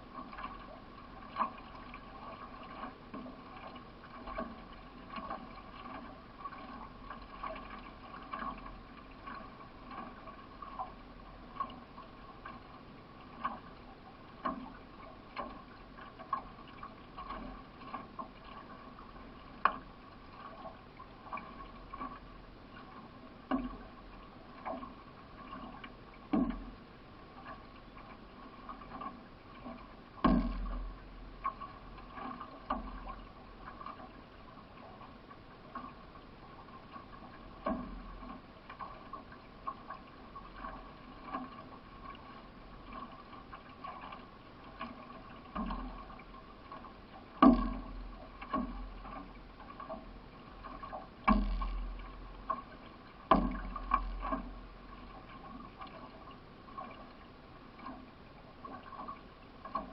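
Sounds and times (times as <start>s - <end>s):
canoe paddle strokes: 0.0s - 59.9s
hull knocks: 26.3s - 26.7s, 29.7s - 31.6s, 47.4s - 49.3s, 50.6s - 52.6s, 53.3s - 54.6s.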